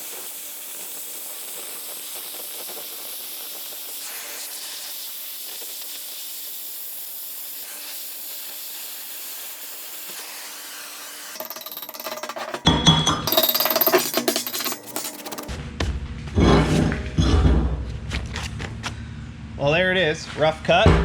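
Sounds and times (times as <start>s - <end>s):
cutting torch hissing: 0.0s - 11.4s.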